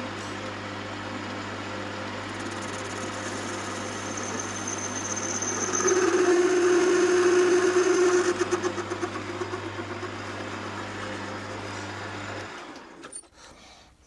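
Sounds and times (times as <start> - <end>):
lathe motor running: 0.0 - 13.0
blade cutting metal tone: 2.2 - 11.5.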